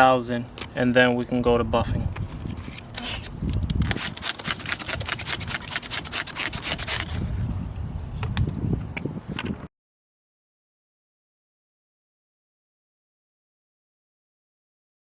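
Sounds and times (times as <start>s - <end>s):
sandpaper rubbing on plastic: 2.2s - 7.3s.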